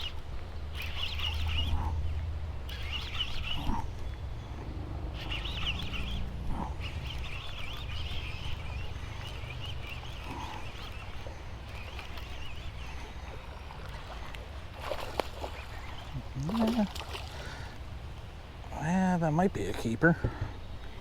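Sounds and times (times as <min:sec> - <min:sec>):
birds chirping and singing: 0:00.0 - 0:14.2
low steady rumble: 0:00.0 - 0:19.2.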